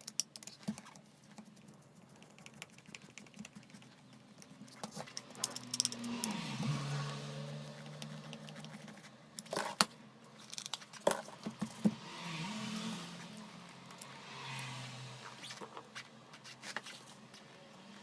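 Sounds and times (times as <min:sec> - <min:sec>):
sharp clicks and knocks: 0:00.0 - 0:06.4.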